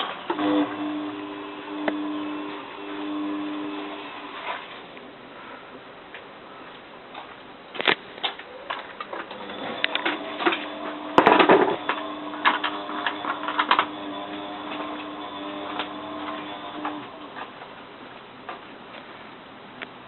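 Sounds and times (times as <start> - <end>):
washing machine motor whine: 0.0 - 4.9, 9.1 - 17.6
loud clunk: 9.4 - 14.0.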